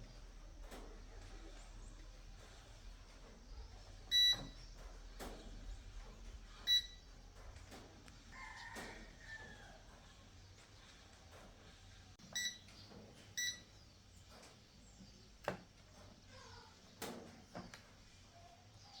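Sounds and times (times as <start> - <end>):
short electronic beeps: 4.1 - 4.6, 6.7 - 7.0, 12.4 - 12.6, 13.4 - 13.7.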